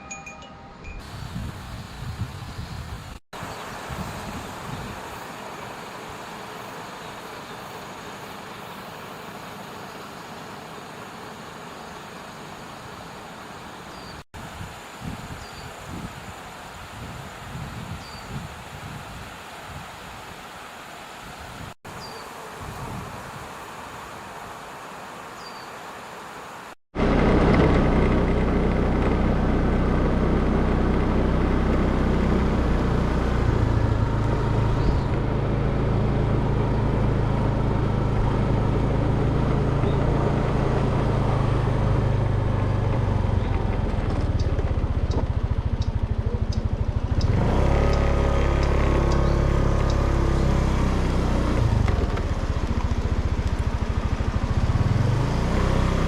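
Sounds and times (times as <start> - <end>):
vehicle engine running: 27.0 - 56.0.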